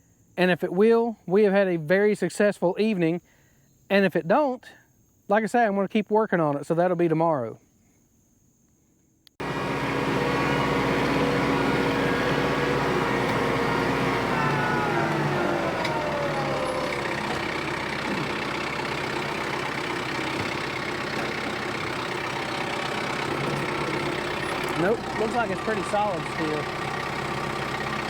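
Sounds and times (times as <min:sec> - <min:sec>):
diesel tractor engine running: 0:09.4 - 0:28.0.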